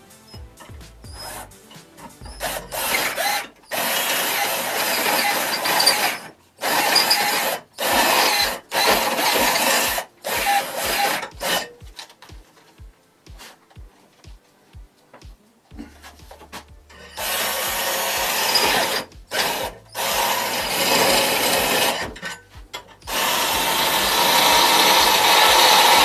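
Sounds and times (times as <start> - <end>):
electric drill cutting metal: 0.2 - 11.8, 16.9 - 22.4, 23.0 - 26.0.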